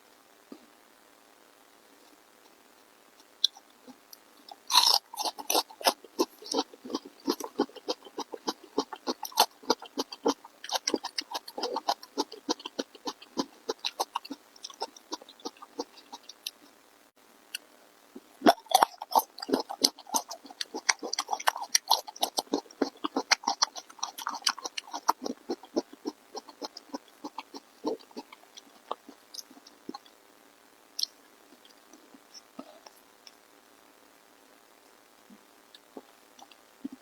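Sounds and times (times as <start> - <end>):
wet chewing and mouth smacking: 3.4 - 16.8, 18.2 - 30.1
crisp mouth clicks: 17.5 - 30.1.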